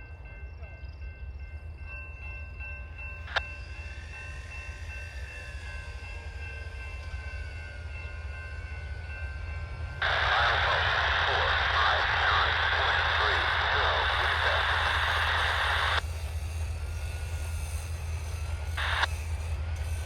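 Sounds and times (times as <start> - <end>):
loud hiss: 10.0 - 19.2.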